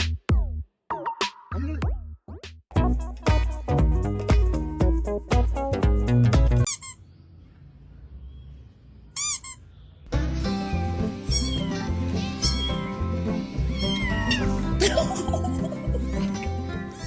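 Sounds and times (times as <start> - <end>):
music with steady beat: 2.7 - 6.7
kitten meowing: 11.3 - 11.8, 13.7 - 14.5.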